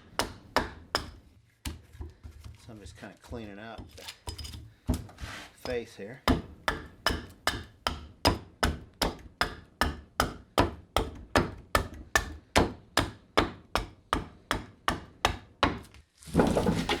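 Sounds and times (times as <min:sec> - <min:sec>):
edge tool chopping wood: 0:00.0 - 0:02.2, 0:06.3 - 0:17.0
scraping rustle: 0:05.1 - 0:05.6, 0:16.2 - 0:17.0.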